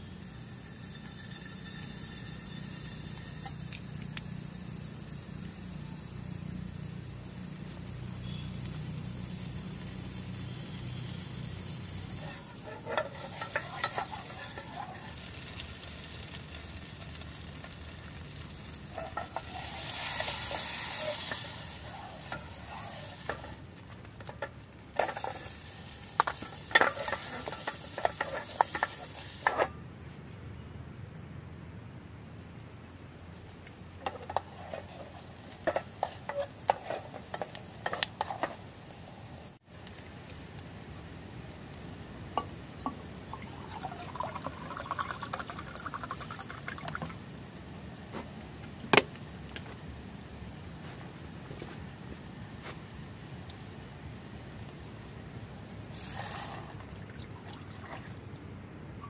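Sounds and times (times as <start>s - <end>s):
onions sizzling in a pot: 0.0s - 29.7s, 33.8s - 56.8s
wooden spatula scraping a pot: 12.1s - 15.2s, 18.9s - 25.6s, 26.2s - 29.7s, 34.0s - 38.7s.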